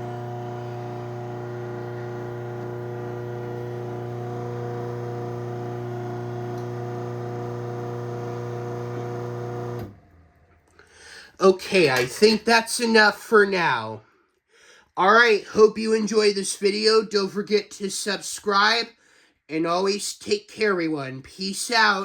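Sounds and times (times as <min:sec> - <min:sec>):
garage door opener motor humming: 0:00.0 - 0:10.7.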